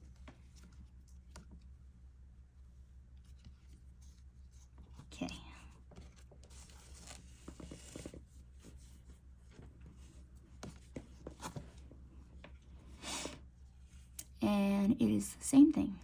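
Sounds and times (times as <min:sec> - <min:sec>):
scratchy rustle: 0:06.0 - 0:11.9.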